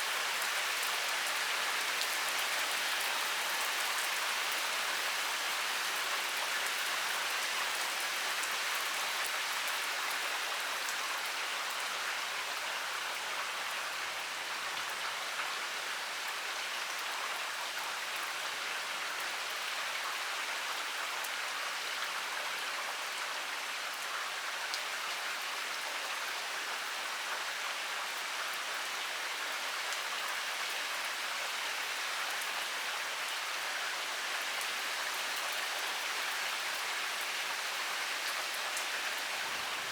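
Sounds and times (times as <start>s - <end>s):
heavy rain pouring: 39.1s - 39.9s.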